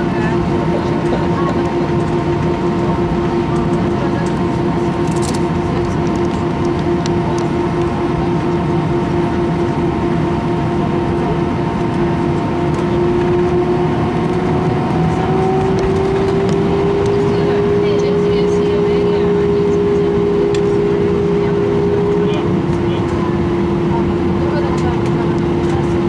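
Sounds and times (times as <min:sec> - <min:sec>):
aircraft cabin engine and air noise: 0:00.0 - 0:26.0
steady hum tone: 0:00.0 - 0:26.0.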